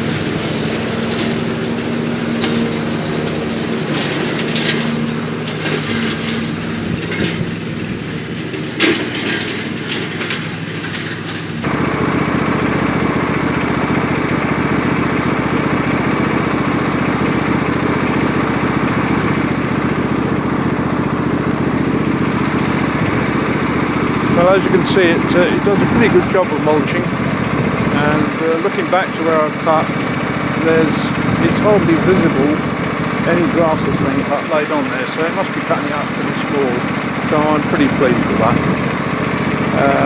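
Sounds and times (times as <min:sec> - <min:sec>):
ride-on mower engine running: 0:00.0 - 0:40.0
sharp cracks and ticks: 0:09.8 - 0:40.0.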